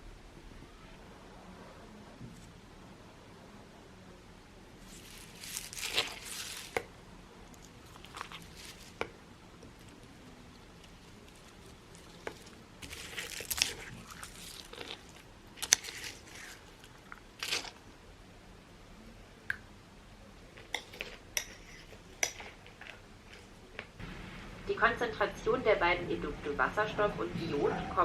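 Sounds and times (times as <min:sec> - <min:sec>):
rustling and crinkling: 0:04.8 - 0:17.9, 0:20.5 - 0:24.0.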